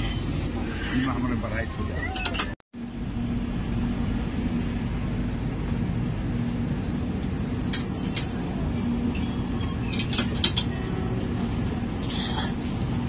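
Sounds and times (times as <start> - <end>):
train rumble: 0.0 - 13.0
steady hum: 2.8 - 13.0.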